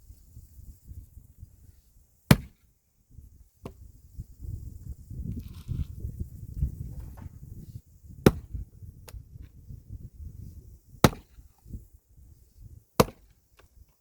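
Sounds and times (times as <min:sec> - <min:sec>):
axe chopping firewood: 0:02.3 - 0:02.7, 0:08.2 - 0:09.2, 0:11.0 - 0:11.5, 0:13.0 - 0:13.7.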